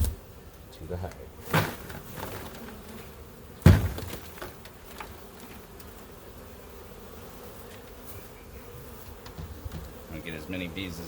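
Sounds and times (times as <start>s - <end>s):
bee swarm buzzing: 0.0s - 11.0s
frame knocking on hive box: 3.6s - 4.6s, 9.2s - 10.0s.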